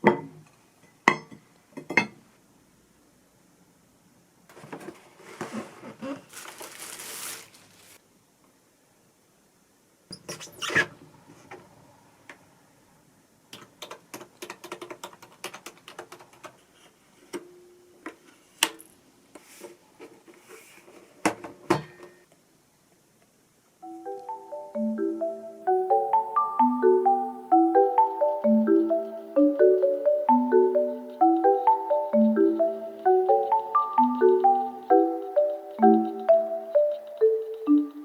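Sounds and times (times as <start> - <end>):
rustling scrape: 4.5 - 8.0, 19.4 - 21.2.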